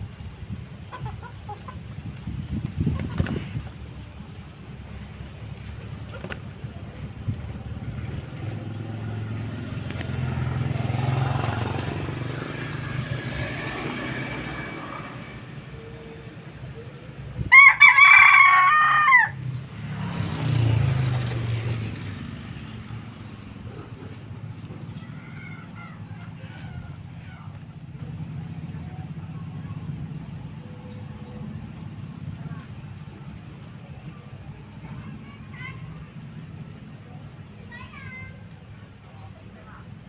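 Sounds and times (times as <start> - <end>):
rooster crowing: 17.5 - 19.4
faint chicken sounds: 24.9 - 27.6.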